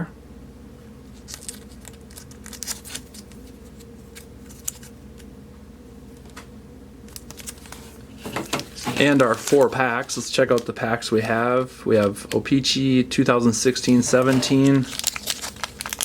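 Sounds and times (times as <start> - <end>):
steady low hum: 0.0 - 16.0
card packs rustling and clicking: 1.1 - 5.0, 7.1 - 12.6, 13.5 - 16.0.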